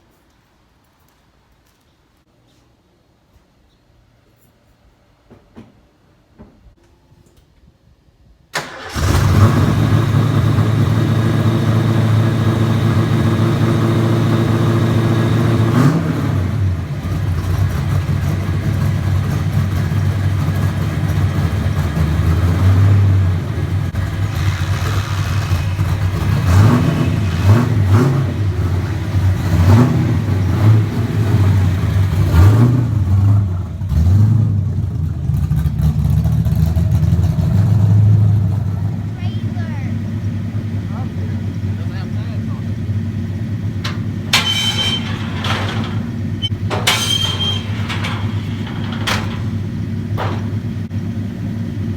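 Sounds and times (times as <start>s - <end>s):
car engine idling: 8.6s - 51.9s
car engine revving: 8.7s - 39.2s.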